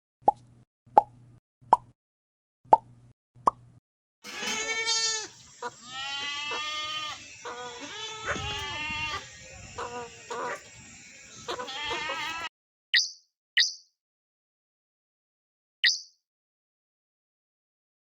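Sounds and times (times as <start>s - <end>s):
quavering bleats: 4.2s - 12.5s.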